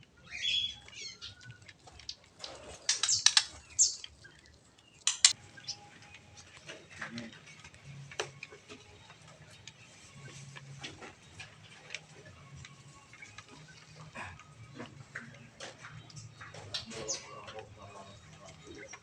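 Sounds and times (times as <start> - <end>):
sharp clicks and ticks: 0.0 - 13.8
small birds chirping: 0.0 - 19.0.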